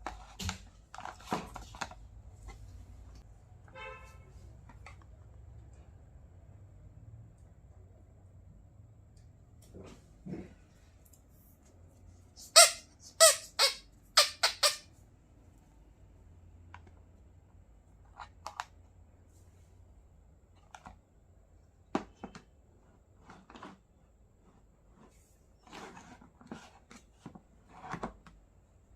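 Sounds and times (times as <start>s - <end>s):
toy squeaks: 12.4s - 14.9s.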